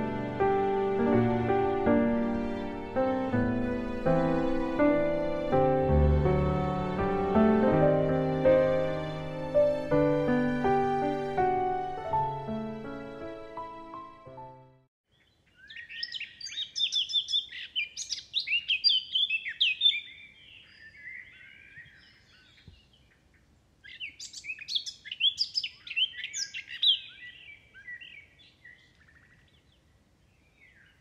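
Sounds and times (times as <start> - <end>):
songbirds chirping and trilling: 15.1 - 31.0.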